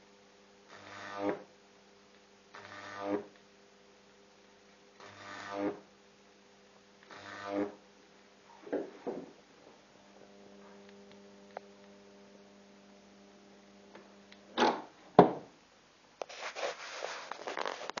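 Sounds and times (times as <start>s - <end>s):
electrical crackling: 5.0s - 5.8s, 7.0s - 7.8s, 16.3s - 18.0s.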